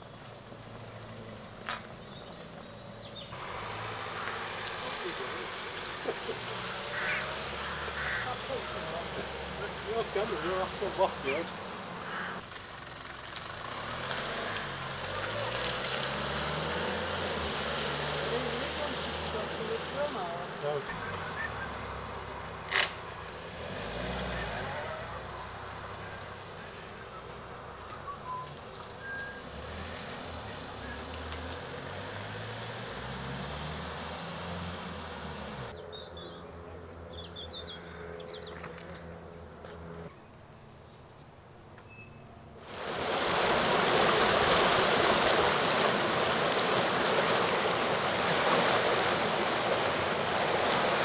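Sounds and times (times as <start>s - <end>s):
vehicle engine running: 0.0s - 40.2s
rush of water: 3.3s - 12.8s, 13.5s - 35.7s, 42.6s - 51.0s.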